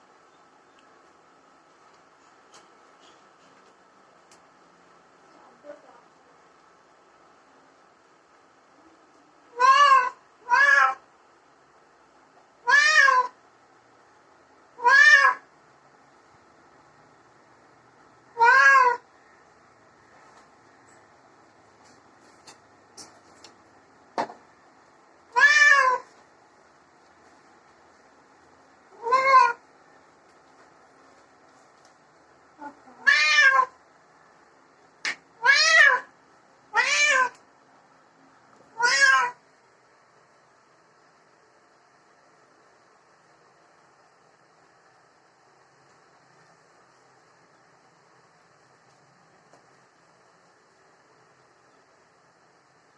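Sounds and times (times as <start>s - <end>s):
cat meowing: 9.5s - 11.0s, 12.6s - 13.4s, 14.8s - 15.4s, 18.4s - 19.0s, 25.3s - 26.1s, 29.0s - 29.6s, 32.6s - 33.8s, 35.4s - 36.1s, 36.7s - 37.4s, 38.7s - 39.4s.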